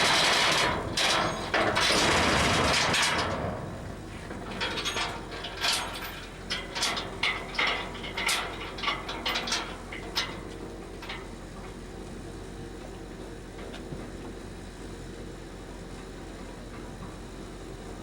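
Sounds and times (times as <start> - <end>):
metallic clicks and clanks: 4.5 - 10.4.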